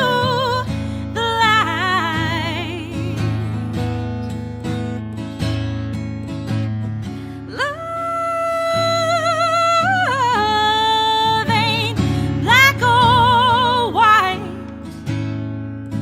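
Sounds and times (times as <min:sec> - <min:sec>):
woman singing: 0:00.0 - 0:03.8, 0:07.4 - 0:14.9
acoustic guitar: 0:00.0 - 0:16.0.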